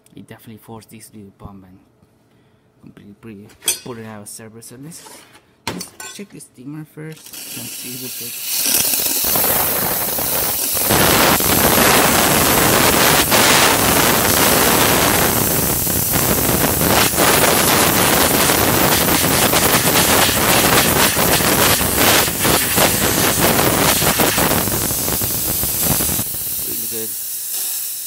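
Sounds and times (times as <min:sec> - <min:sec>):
steam wand hissing: 0:07.2 - 0:28.0.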